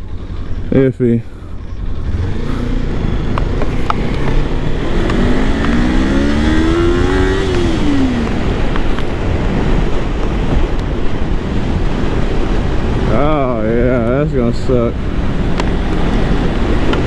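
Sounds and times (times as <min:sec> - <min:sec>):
motorcycle engine revving: 0:00.0 - 0:13.4
wind and road noise: 0:00.0 - 0:17.0.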